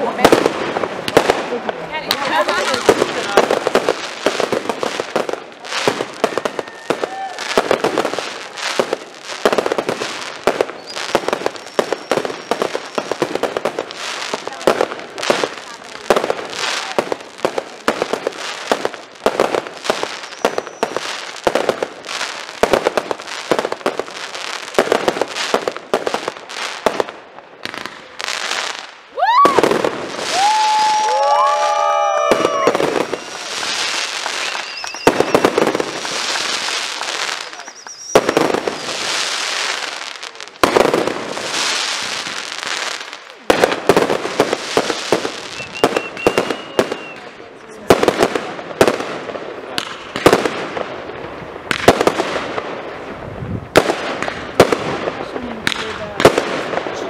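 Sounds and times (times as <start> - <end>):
firework bangs and crackles: 0.0 - 57.0
firework whistles gliding: 5.8 - 8.5, 10.6 - 13.2, 20.0 - 21.2, 29.2 - 39.8, 45.2 - 47.3.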